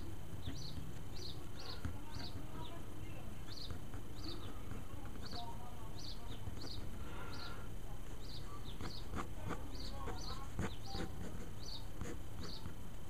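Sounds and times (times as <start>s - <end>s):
small bird chirping: 0.0s - 7.6s, 8.2s - 12.7s
low steady background hum: 0.0s - 13.0s.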